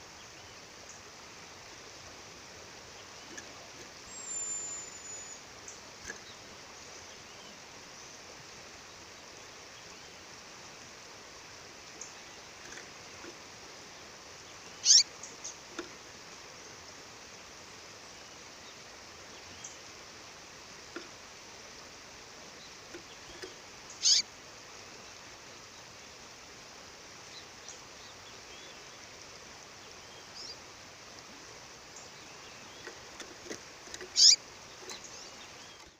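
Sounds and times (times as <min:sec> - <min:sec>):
faint bird chirps: 0:02.9 - 0:08.2, 0:13.9 - 0:15.6, 0:22.5 - 0:24.3, 0:29.7 - 0:30.7, 0:34.0 - 0:35.9
songbird high calls: 0:03.0 - 0:08.1, 0:14.4 - 0:15.7, 0:22.6 - 0:24.3, 0:29.8 - 0:30.6, 0:34.1 - 0:35.9.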